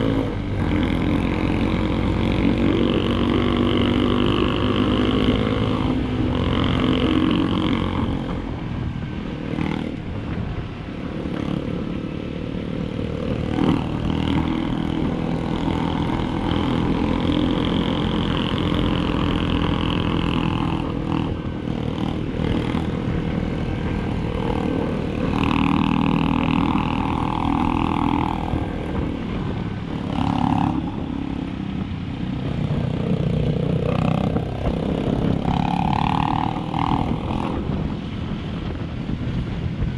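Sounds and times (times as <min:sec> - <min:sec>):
motorcycle engine running: 0:00.0 - 0:39.9
wind buffeting: 0:00.0 - 0:39.9.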